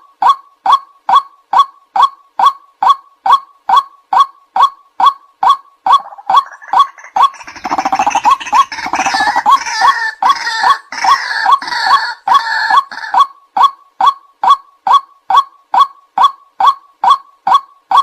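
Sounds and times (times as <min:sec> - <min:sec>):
waterhen kwak calls: 0:05.4 - 0:15.0
chorus of harsh bird calls: 0:05.9 - 0:13.2.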